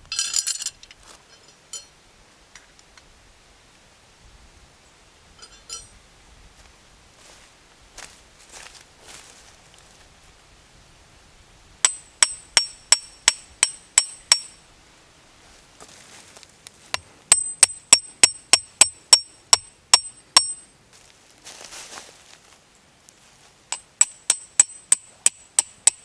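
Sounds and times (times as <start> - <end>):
hammer striking steel tent stake: 11.8 - 14.6, 16.9 - 20.7, 23.7 - 26.0.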